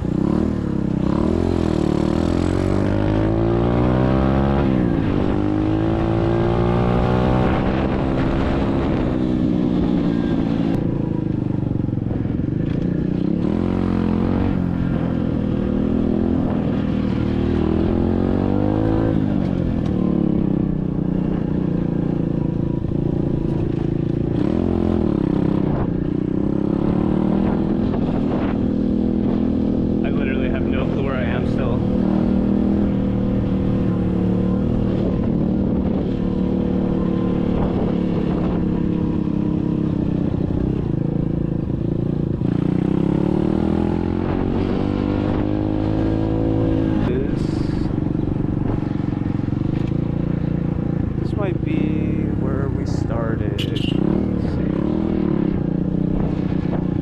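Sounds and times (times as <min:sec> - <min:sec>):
dirt bike engine revving: 0:00.0 - 0:10.6, 0:42.3 - 0:48.0, 0:48.6 - 0:57.0.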